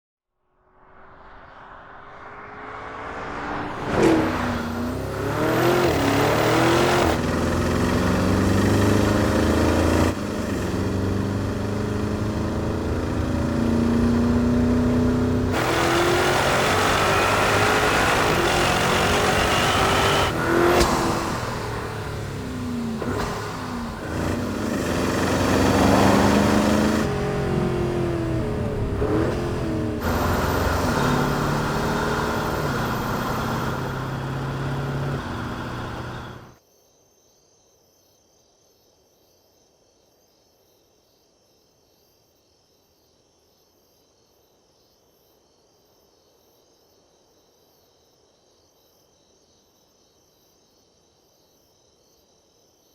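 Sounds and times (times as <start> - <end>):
car engine revving and accelerating: 1.8 - 36.6.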